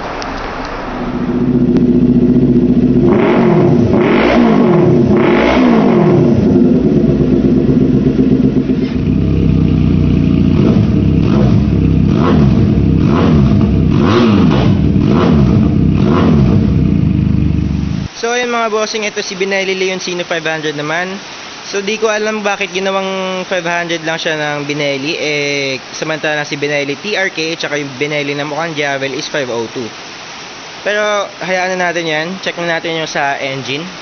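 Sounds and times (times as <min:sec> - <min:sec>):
motorcycle engine idling and revving: 0:00.0 - 0:18.1.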